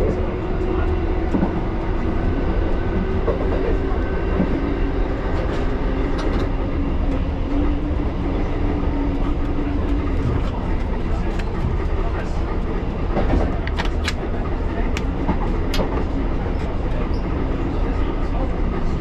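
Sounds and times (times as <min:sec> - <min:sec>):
train wheels rumbling on rails: 0:00.0 - 0:19.0
light clicks from track: 0:00.1 - 0:07.2, 0:09.4 - 0:17.3.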